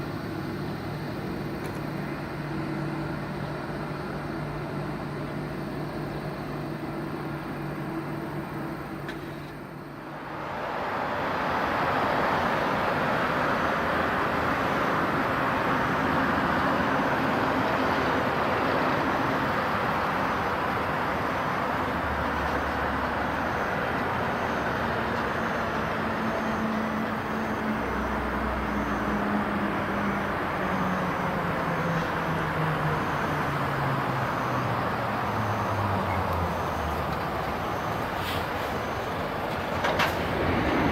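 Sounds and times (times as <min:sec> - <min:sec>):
jet airliner passing overhead: 0:37.7 - 0:40.9.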